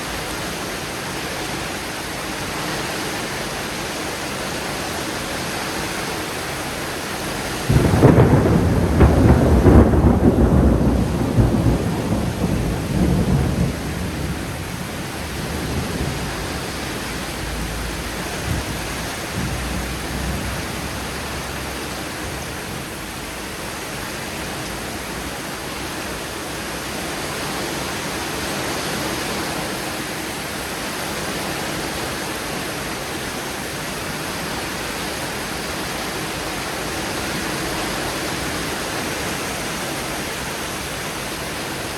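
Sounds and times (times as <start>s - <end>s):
steady rain: 0.0s - 41.9s
thunder rumbling: 7.2s - 25.9s.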